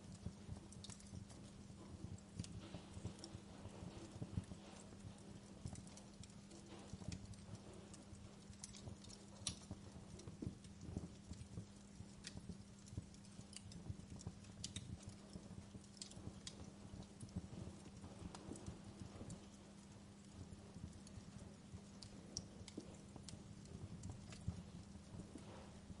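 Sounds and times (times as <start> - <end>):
steady low hum: 0.0 - 26.0
wood fire crackling: 0.0 - 26.0.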